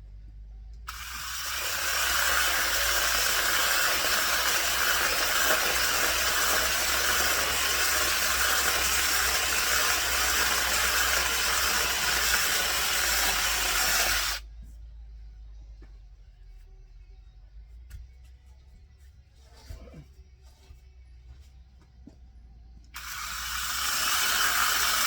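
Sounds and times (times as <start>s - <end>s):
loud steady hiss: 0.9s - 14.4s, 23.0s - 25.0s.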